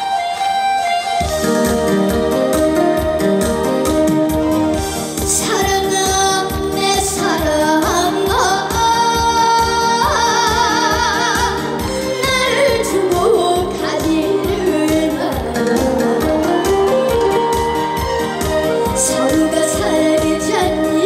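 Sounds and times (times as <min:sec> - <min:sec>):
accompaniment with steady beat: 0:00.0 - 0:21.0
woman singing with vibrato: 0:05.2 - 0:17.1, 0:18.9 - 0:21.0.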